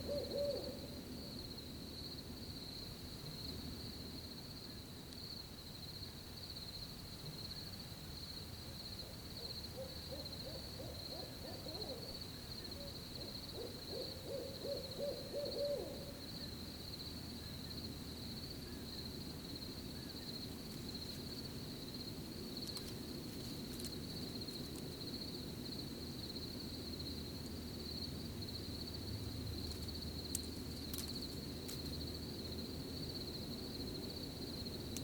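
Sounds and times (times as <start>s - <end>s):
owl hooting: 0.0s - 1.0s, 9.0s - 16.2s
crickets chirring: 0.0s - 35.0s.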